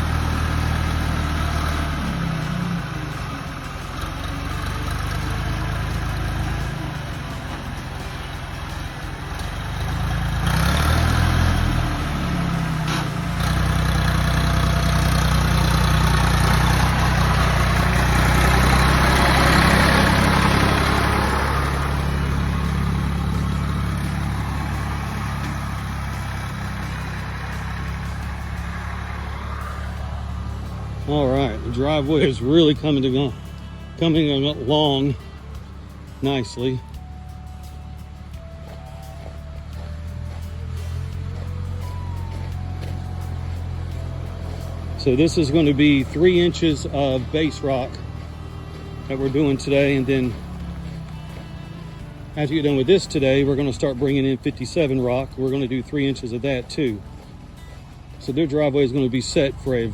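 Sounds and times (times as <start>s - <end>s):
tractor engine running under load: 0.0s - 59.9s.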